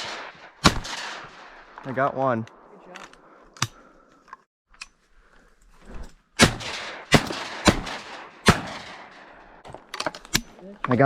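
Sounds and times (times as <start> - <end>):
shotgun blasts with rolling echo: 0.0 - 2.6, 6.4 - 9.6.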